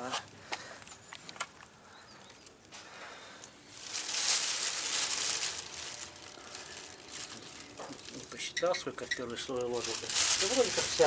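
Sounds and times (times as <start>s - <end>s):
crinkling and rustling: 3.7s - 11.0s.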